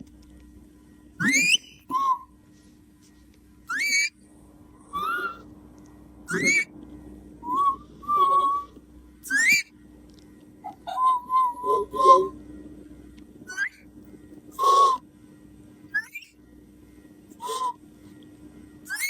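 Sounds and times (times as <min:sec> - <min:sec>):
parrot whistling: 0:01.2 - 0:02.3, 0:03.7 - 0:04.2, 0:04.9 - 0:05.4, 0:06.3 - 0:06.7, 0:07.4 - 0:09.7, 0:10.6 - 0:12.3, 0:13.5 - 0:13.8, 0:14.5 - 0:15.0, 0:15.9 - 0:16.4, 0:17.4 - 0:17.8.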